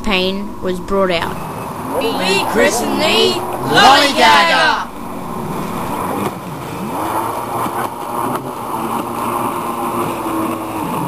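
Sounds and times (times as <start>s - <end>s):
steady rushing noise: 1.3s - 8.0s
motorboat engine running: 1.4s - 2.0s, 4.9s - 11.0s.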